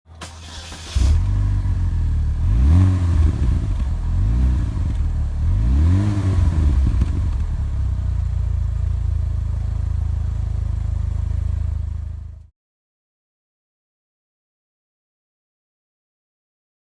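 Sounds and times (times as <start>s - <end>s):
car engine revving: 0.3s - 12.4s
car engine idling: 0.3s - 12.5s.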